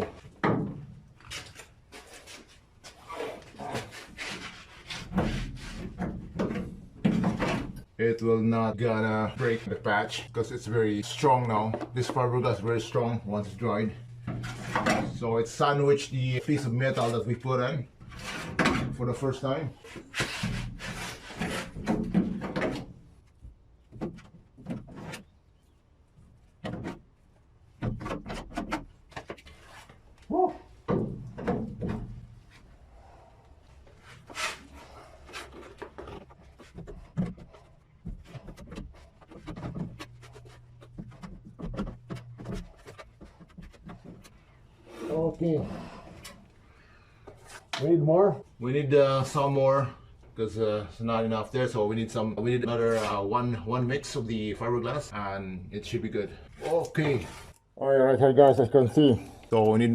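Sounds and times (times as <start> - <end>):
scraping and rubbing on steel panel: 2.0 - 7.8, 14.2 - 15.2, 18.0 - 18.8, 19.8 - 22.5, 34.0 - 45.2
filler scraping on metal panel: 19.8 - 21.9.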